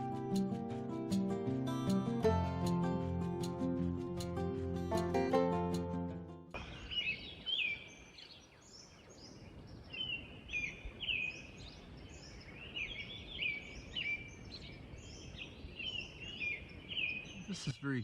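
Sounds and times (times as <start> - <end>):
songbird chirping: 6.5 - 18.0.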